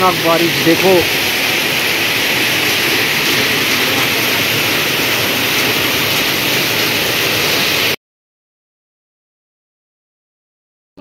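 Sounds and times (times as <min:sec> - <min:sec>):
heavy rain pouring: 0:00.0 - 0:08.0.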